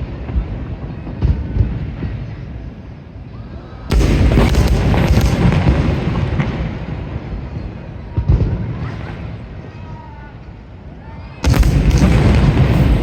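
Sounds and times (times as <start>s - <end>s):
fireworks booming: 3.9s - 9.8s, 11.4s - 13.0s
fireworks crackling bangs: 3.9s - 9.8s, 11.4s - 13.0s.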